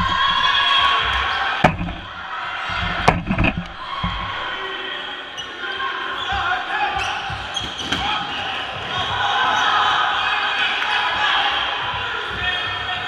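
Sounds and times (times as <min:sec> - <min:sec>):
dodgeballs smacking: 0:01.6 - 0:04.6.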